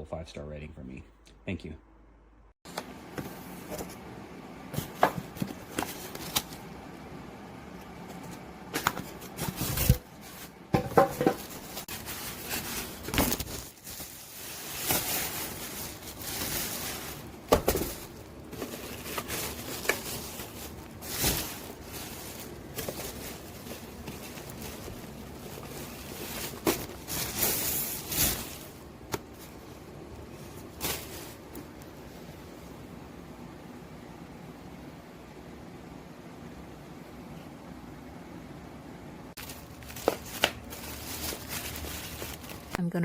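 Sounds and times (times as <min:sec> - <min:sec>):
rustling: 0:08.2 - 0:31.8, 0:39.4 - 0:42.8.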